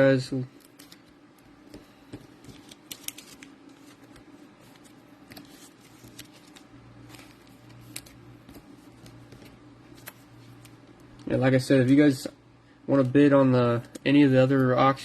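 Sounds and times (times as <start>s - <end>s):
cards being handled clicks: 1.7s - 11.3s.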